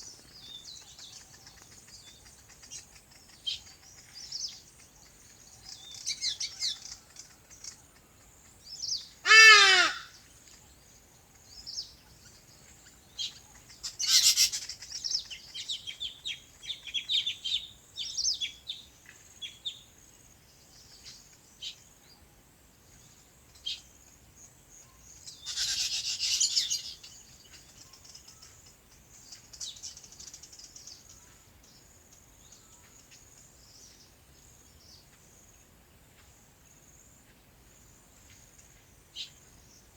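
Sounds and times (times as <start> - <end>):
loud harsh bird call: 9.2 - 10.2
birds chirping and calling: 11.6 - 18.6, 25.2 - 31.2.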